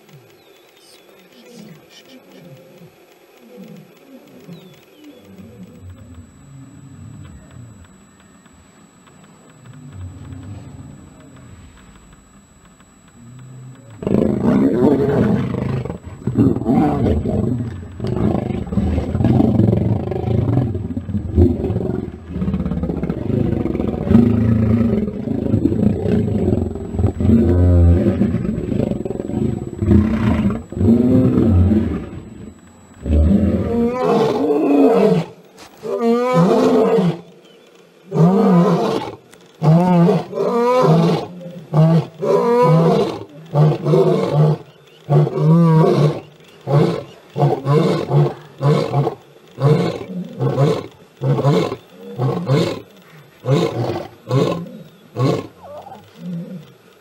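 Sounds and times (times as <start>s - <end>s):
lions snarling and growling: 9.6s - 11.7s, 13.2s - 56.8s
lion roaring calls: 13.3s - 37.4s, 38.1s - 56.8s.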